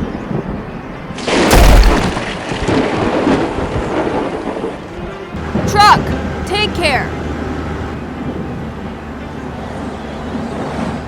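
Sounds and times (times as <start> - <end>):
thunderclap and rumble: 0.2 - 6.3
steady rain: 1.2 - 5.8.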